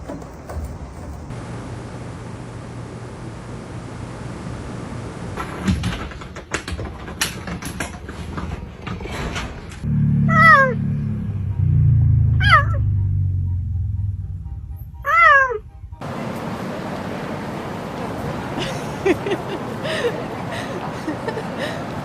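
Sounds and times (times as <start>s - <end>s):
loud low rumble: 9.8s - 16.9s
cat meowing: 10.3s - 10.8s, 12.4s - 12.8s, 15.0s - 15.6s.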